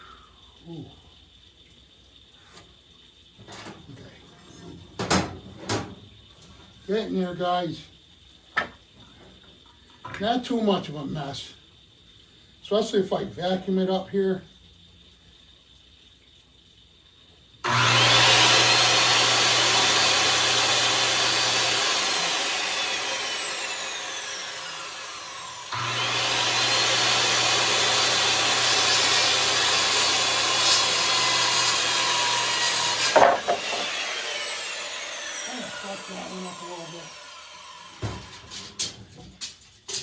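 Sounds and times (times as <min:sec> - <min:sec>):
electric saw cutting wood: 0:17.6 - 0:39.0.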